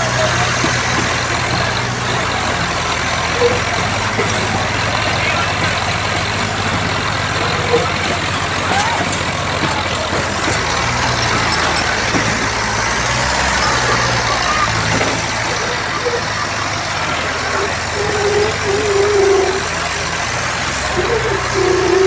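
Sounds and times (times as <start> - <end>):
tractor engines running hard: 0.0 - 22.0
voices: 0.0 - 22.0.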